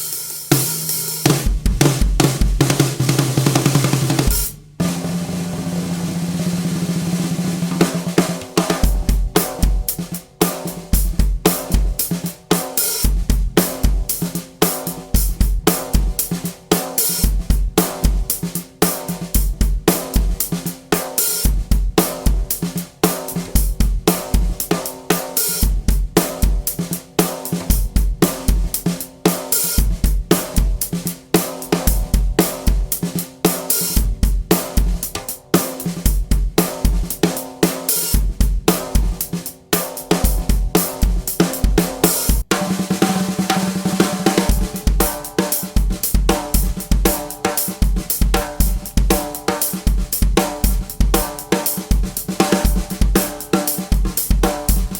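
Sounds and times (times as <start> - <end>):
hi-hat and cymbal hits: 0.0 - 3.0, 8.4 - 54.9
bass drum beats: 1.2 - 12.5, 38.2 - 54.9.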